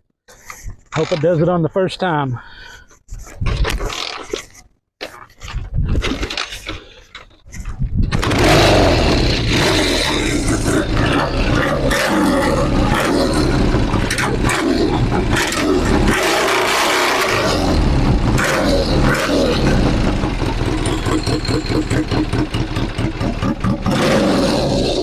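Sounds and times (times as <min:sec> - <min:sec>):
motorcycle engine kick-started: 0:08.0 - 0:25.0.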